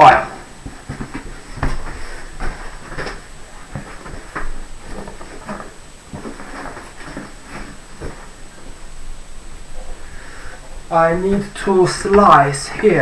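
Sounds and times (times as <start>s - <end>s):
cardboard knocks and scrapes: 0.6s - 8.4s.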